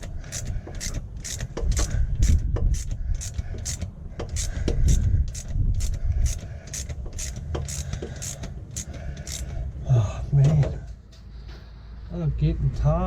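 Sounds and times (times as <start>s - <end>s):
socket ratchet clicking: 0.0s - 9.5s.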